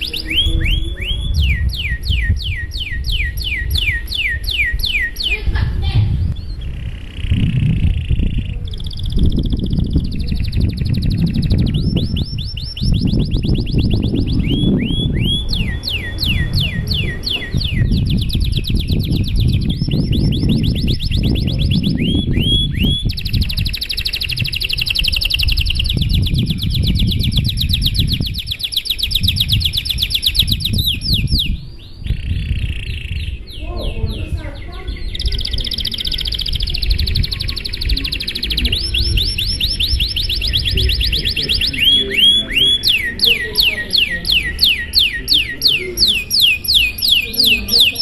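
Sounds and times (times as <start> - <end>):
canary singing trilled song: 0.0 - 5.6, 6.3 - 48.0
steady low rumble: 0.0 - 48.0.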